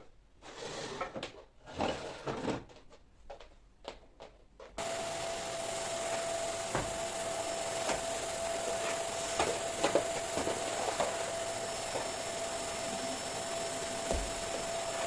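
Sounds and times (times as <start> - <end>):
vacuum cleaner whining: 4.8 - 15.0.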